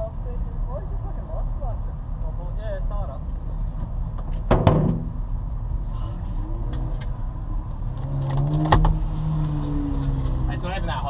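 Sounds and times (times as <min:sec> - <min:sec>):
sharp knocks: 0:04.5 - 0:05.2.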